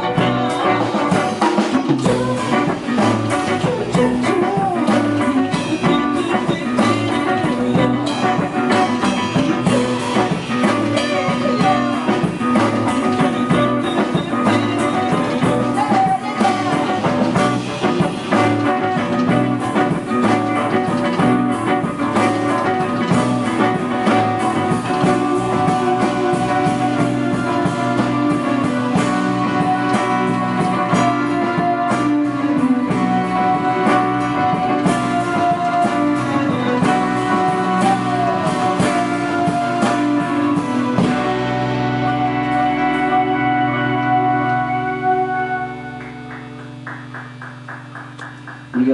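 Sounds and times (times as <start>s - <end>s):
electric guitar: 0.0s - 48.9s
rock band instrumental: 0.0s - 48.9s.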